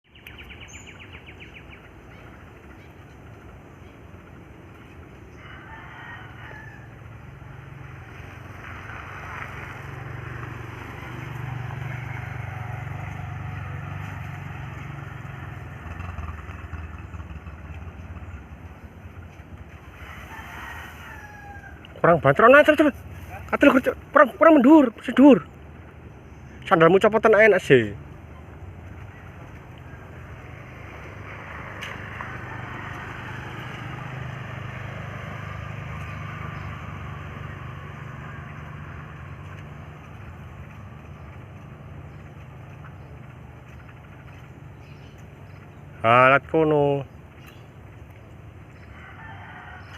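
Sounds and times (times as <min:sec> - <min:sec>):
outdoor noise: 0:00.0 - 0:49.9
motorcycle engine running: 0:06.2 - 0:26.2, 0:27.7 - 0:48.9.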